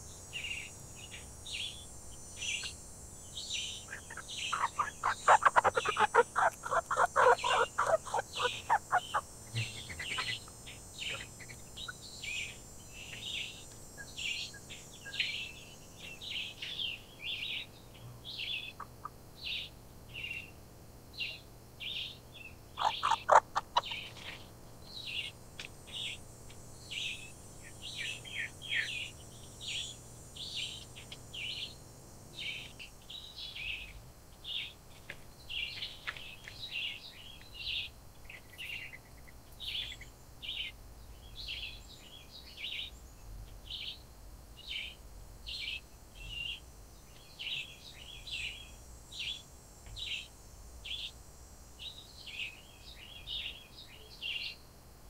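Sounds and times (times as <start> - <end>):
bird chirping: 0.0 - 20.5, 21.2 - 26.2, 26.8 - 31.8, 35.4 - 44.0, 44.6 - 51.2, 51.8 - 54.6.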